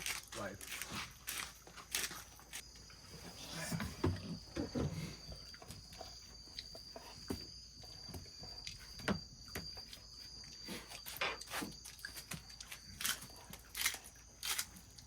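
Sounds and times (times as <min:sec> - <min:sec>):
high-pitched insect drone: 0:01.3 - 0:15.0.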